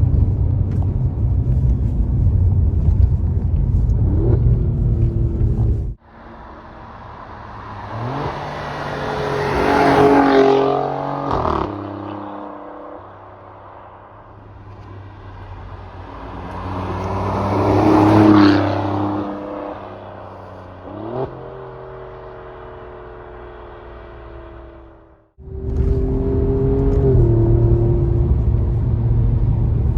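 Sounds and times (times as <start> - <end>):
car engine accelerating: 0.0 - 6.0, 14.3 - 29.9.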